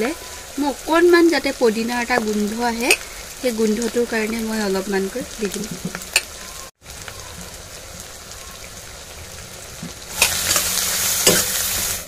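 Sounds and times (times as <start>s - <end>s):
food sizzling in a wok: 0.0s - 12.0s
spatula scraping a pan: 10.1s - 12.0s.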